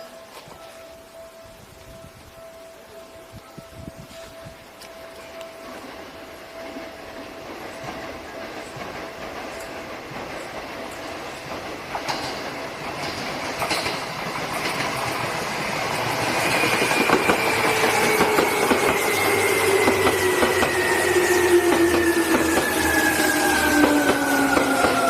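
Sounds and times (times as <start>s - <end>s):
electric train pulling in: 0.0s - 25.0s
wheels clicking over rail joints: 4.7s - 25.0s
train brakes whine falling: 6.4s - 25.0s.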